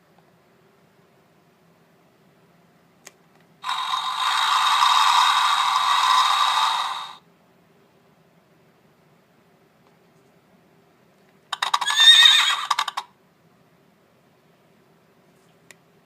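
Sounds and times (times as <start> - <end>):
tinny mechanical sound effect: 3.6 - 7.2.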